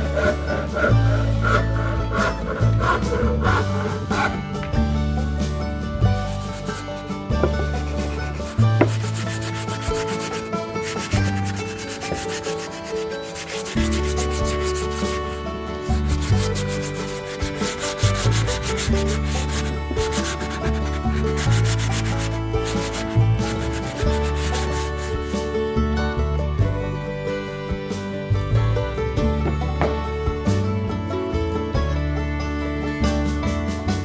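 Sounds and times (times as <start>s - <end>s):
sandpaper rubbing on wood: 0.0s - 4.5s, 6.2s - 25.3s
background music with bass: 0.0s - 34.0s.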